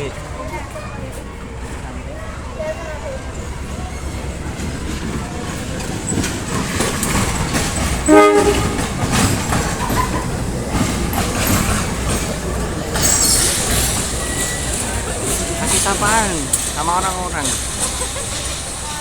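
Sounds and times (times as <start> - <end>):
train rumbling on track: 0.0 - 19.0
train wheel clicks: 4.0 - 19.0
locomotive horn toot: 8.0 - 9.0.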